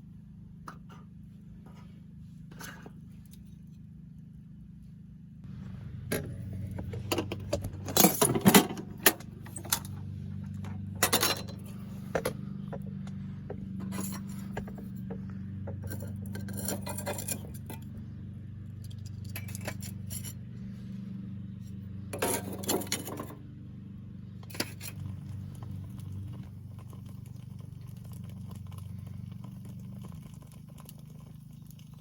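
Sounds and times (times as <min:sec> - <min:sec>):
steady low hum: 0:00.0 - 0:30.6
metal gear clinking: 0:19.0 - 0:20.4.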